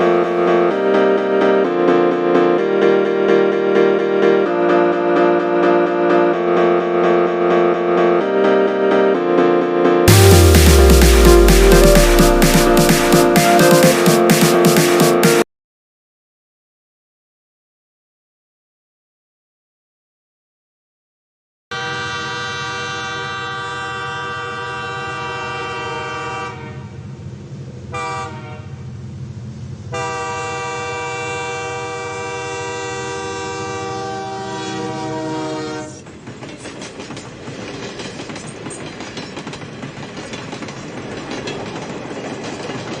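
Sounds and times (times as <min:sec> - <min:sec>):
train horn blasts: 0:21.7 - 0:27.0, 0:27.9 - 0:28.8, 0:29.9 - 0:36.0
train rumbling on rails: 0:22.0 - 0:43.0.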